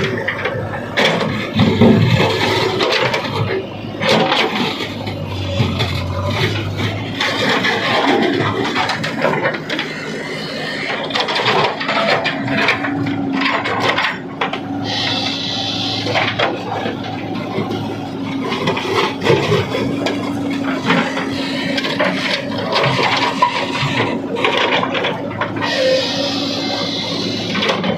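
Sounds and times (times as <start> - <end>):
heavy machinery engine running: 0.0 - 27.9
hiss: 14.8 - 16.3, 25.7 - 27.6.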